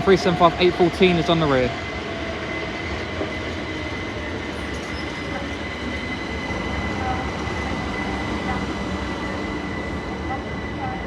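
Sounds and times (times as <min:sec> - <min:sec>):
train rumbling: 0:00.0 - 0:11.0
high squeal: 0:04.5 - 0:08.4.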